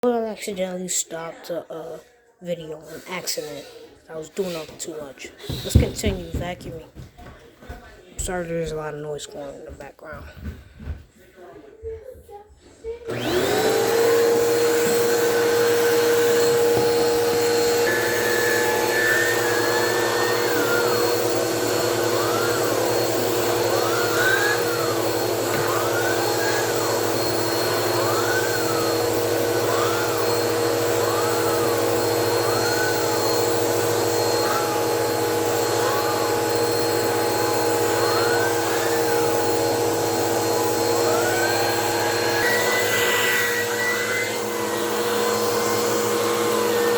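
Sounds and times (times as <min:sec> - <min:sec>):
vacuum cleaner motor running: 0:04.4 - 0:07.3, 0:12.9 - 0:46.9
turbobrush rising and falling tone: 0:13.1 - 0:46.9.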